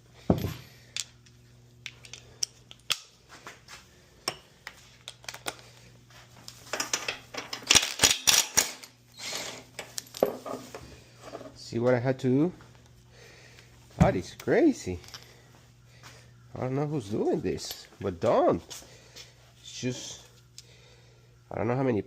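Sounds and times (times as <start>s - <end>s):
metal tools clinking: 6.6s - 10.6s, 14.8s - 15.4s, 17.5s - 18.1s.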